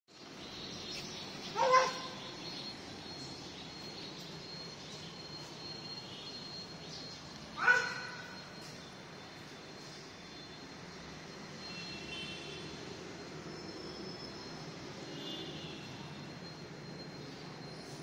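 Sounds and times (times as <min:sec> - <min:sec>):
thin steady high tone: 0:00.2 - 0:18.0
bird harsh cry: 0:01.4 - 0:02.2, 0:07.6 - 0:08.3.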